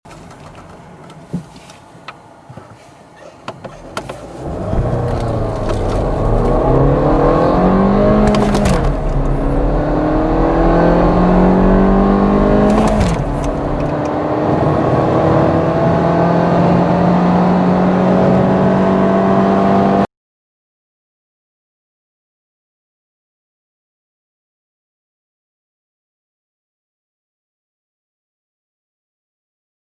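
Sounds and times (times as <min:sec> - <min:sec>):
car engine accelerating hard: 0:03.7 - 0:20.1.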